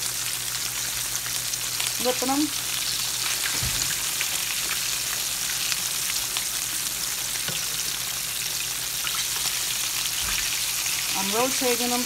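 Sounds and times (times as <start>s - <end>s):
ribs sizzling in hot oil: 0.0s - 12.0s.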